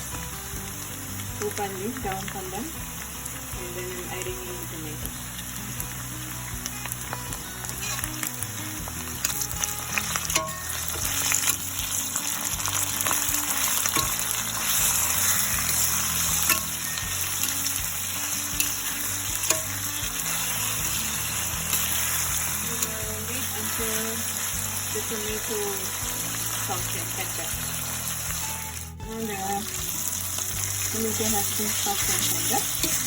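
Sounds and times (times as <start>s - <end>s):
vegetables sizzling in a frying pan: 0.0s - 33.0s
spatula scraping a pan: 7.8s - 8.1s, 30.8s - 33.0s.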